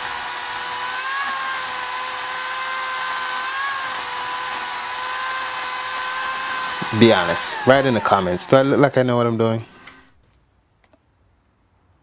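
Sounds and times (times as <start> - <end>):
small power tool motor running: 0.0 - 10.2.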